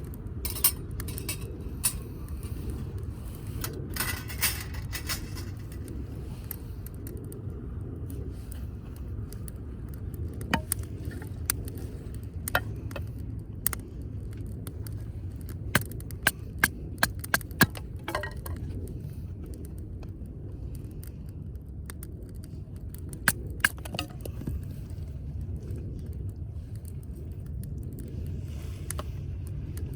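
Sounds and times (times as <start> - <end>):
wood fire crackling and popping: 8.4 - 28.2.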